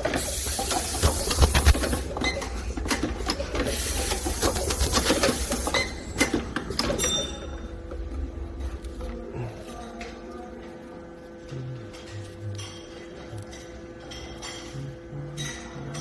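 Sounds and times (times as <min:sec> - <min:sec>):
machine clicking and clattering: 0:00.0 - 0:07.1
steady machine hum: 0:00.0 - 0:16.0.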